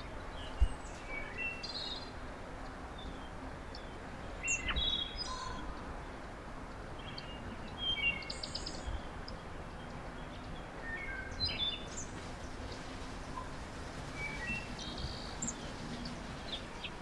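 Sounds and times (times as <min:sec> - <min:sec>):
outdoor background hiss: 0:00.0 - 0:17.0
songbirds chirping: 0:00.0 - 0:17.0.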